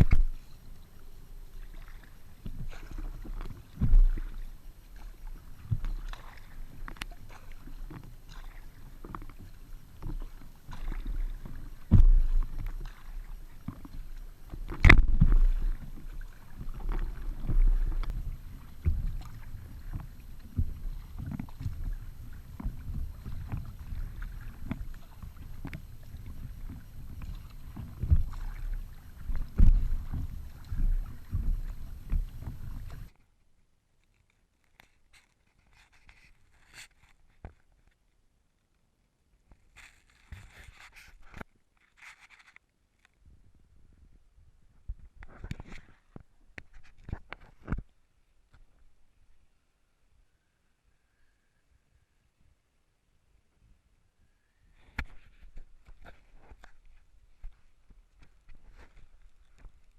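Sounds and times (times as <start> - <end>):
paddle splashes and drips: 0.0 - 33.3, 54.8 - 59.9.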